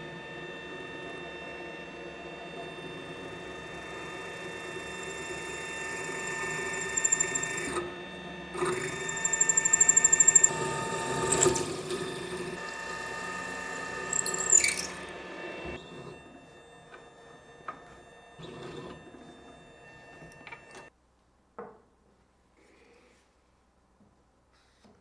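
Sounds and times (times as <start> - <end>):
machine tool whining: 0.0 - 20.9
squealing chatter of cutting: 5.0 - 7.8, 8.6 - 11.8, 12.6 - 15.0.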